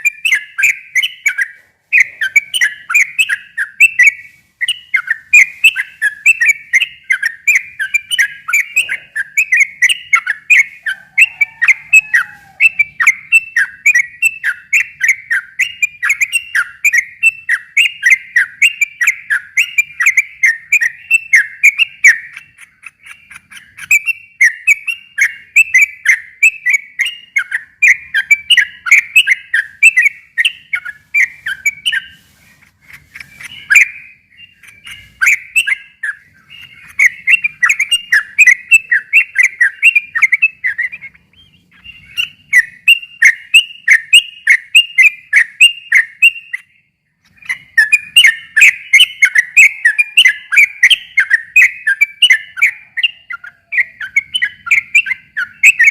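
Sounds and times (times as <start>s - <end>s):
bird singing whistled notes: 0.0s - 55.9s.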